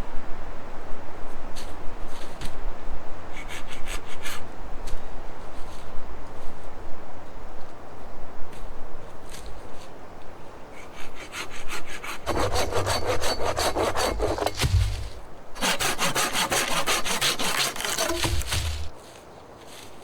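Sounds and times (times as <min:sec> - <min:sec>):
hand saw cutting wood: 0:10.9 - 0:19.0.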